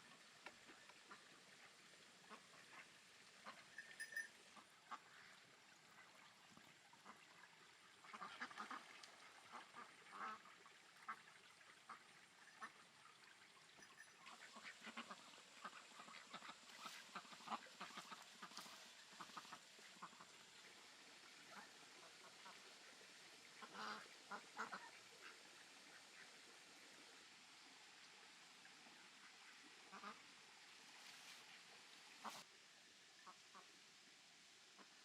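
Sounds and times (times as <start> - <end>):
ducks quacking faintly: 0.0 - 32.6, 33.2 - 33.8.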